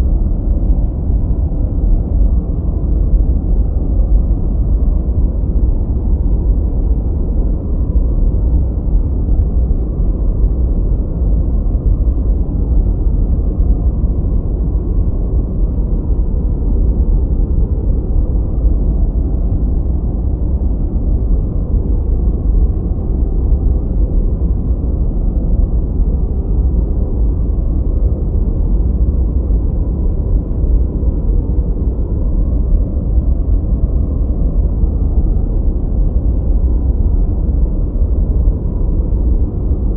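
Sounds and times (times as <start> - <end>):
deep muffled white noise: 0.0 - 39.9.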